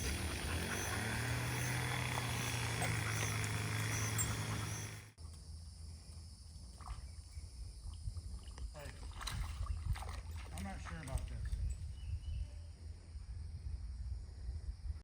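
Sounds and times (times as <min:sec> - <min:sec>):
engine running: 0:00.0 - 0:05.2.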